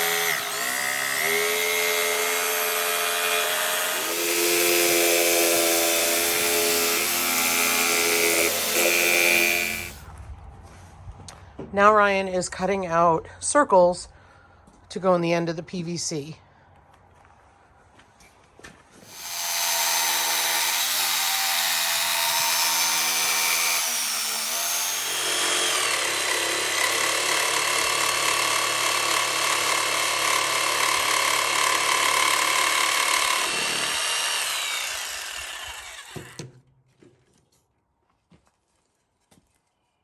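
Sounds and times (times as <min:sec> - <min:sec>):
power tool cutting pipe: 0:00.0 - 0:10.0, 0:19.0 - 0:36.5.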